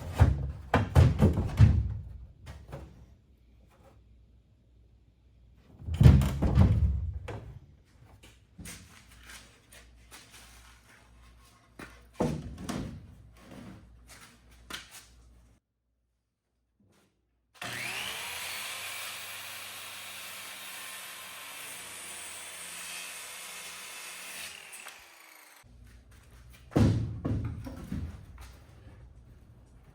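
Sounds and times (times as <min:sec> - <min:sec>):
loud knocks and thuds: 0:00.1 - 0:02.2, 0:05.9 - 0:07.6, 0:26.7 - 0:28.3
power tool whining: 0:17.6 - 0:25.6.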